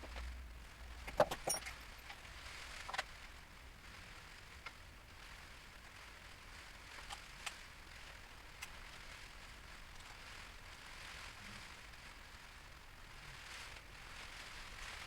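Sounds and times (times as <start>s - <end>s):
faint steady hiss: 0.0s - 15.0s
light clicks and knocks of tools: 1.0s - 2.2s.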